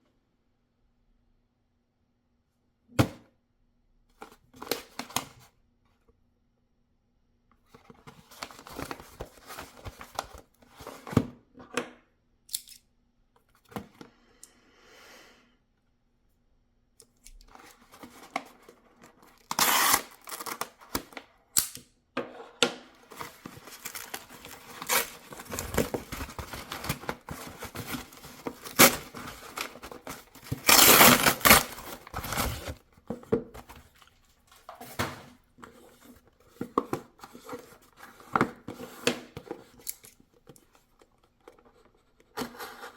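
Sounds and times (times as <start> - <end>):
small handling clicks: 12.5 - 12.9
paper and cardboard rustling and tearing: 17.5 - 21.2, 23.0 - 39.8.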